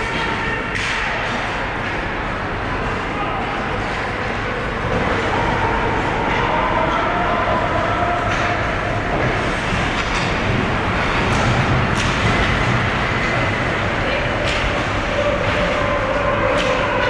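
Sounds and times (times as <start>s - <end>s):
hockey sticks and puck clacking: 0.0s - 2.1s, 7.8s - 17.0s
skates rumbling on ice: 4.8s - 17.0s.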